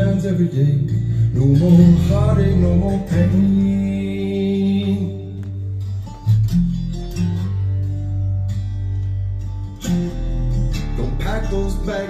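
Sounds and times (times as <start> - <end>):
man singing: 0.0 - 5.6, 10.8 - 12.0
bass line: 0.0 - 12.0
strummed acoustic guitar: 0.0 - 12.0.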